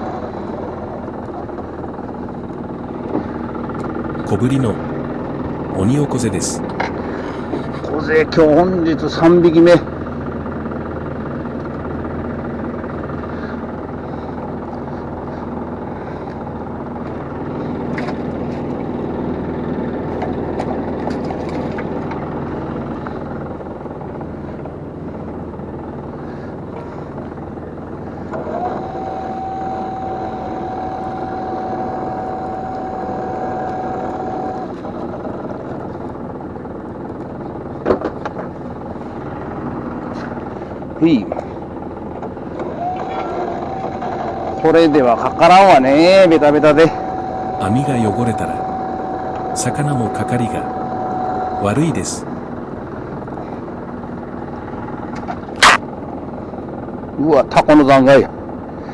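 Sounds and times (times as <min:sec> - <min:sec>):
boat engine humming: 0:00.0 - 0:58.9
steady whine: 0:00.0 - 0:58.9.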